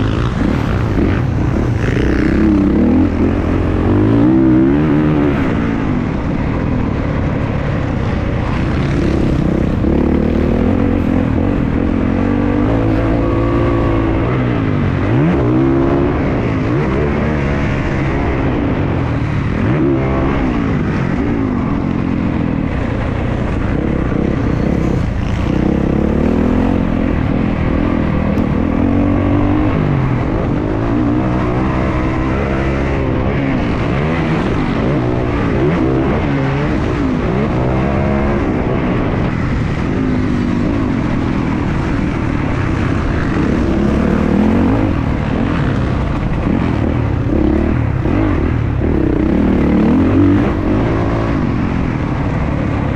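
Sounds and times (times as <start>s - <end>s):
dirt bike engine revving: 0.0s - 6.0s, 24.0s - 52.9s.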